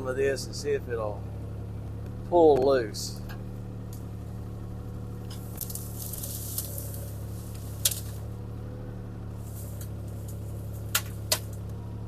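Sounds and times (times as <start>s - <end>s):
excavator diesel engine running: 0.0s - 12.0s
hissy rustle: 5.6s - 8.2s, 9.4s - 10.1s.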